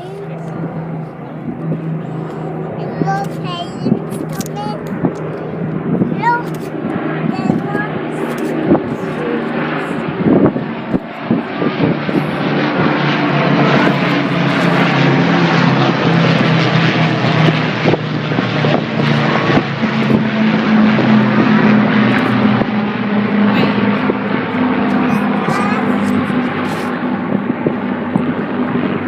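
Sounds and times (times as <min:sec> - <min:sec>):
propeller aircraft flying overhead: 0:00.0 - 0:29.0.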